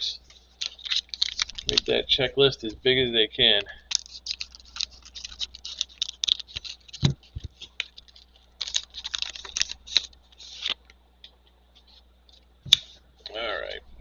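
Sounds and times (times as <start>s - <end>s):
trading cards clicking and scraping: 0.3s - 2.8s, 3.8s - 10.9s.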